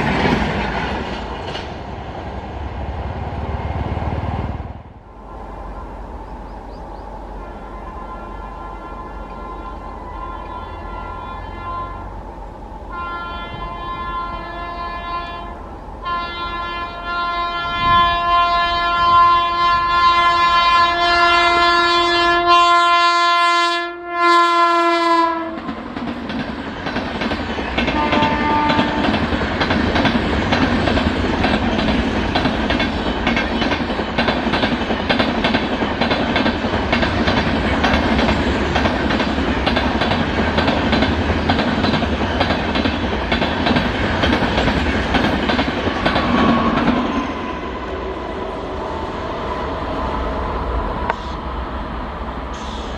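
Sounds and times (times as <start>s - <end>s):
clickety-clack over rail joints: 0.0s - 2.2s, 25.4s - 47.3s
train wheels rushing on rail: 0.0s - 22.5s, 24.6s - 52.9s
train horn: 7.3s - 12.2s, 12.9s - 25.8s, 27.8s - 29.4s, 46.2s - 48.4s.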